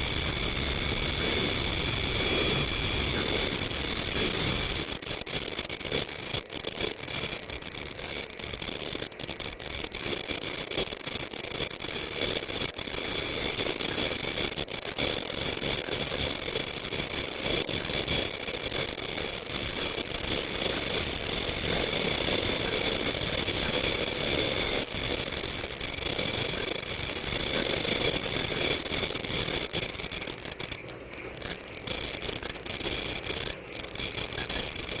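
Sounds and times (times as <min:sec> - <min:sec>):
machine whirring: 0:00.0 - 0:08.4
high-pitched whines: 0:00.0 - 0:13.8.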